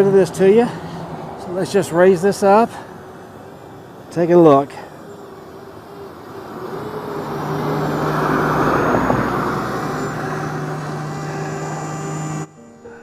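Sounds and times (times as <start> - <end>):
vehicle passing by: 0.0 - 12.5
steady low hum: 0.0 - 13.0.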